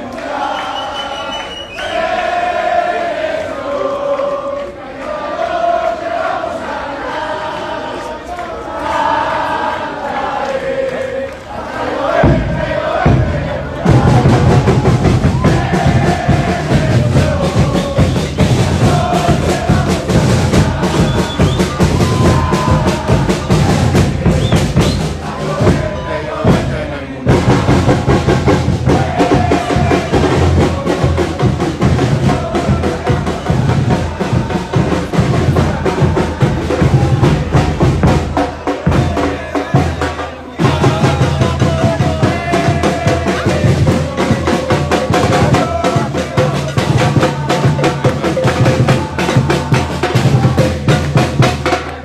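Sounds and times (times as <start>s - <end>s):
background music with drum beat: 11.8s - 52.0s.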